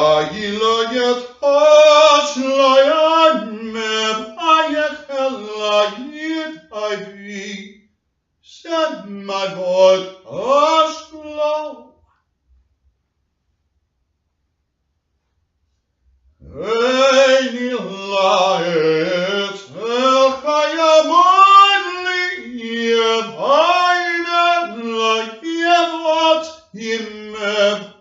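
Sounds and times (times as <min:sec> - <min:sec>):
man chanting: 0:00.0 - 0:07.7, 0:08.5 - 0:11.9, 0:16.4 - 0:28.0.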